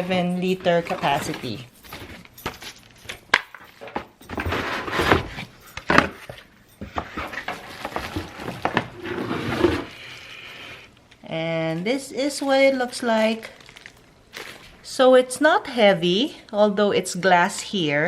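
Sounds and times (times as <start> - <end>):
cardboard scraping and rustling: 3.9 - 10.9.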